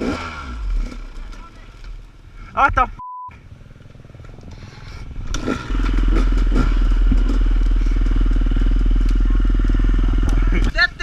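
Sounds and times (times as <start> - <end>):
dirt bike engine idling: 3.4 - 11.0.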